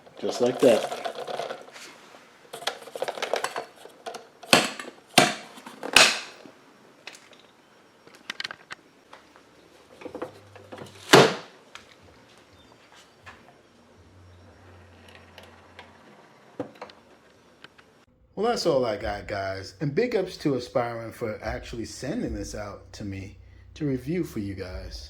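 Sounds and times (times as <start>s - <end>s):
rustling: 0.0s - 6.4s.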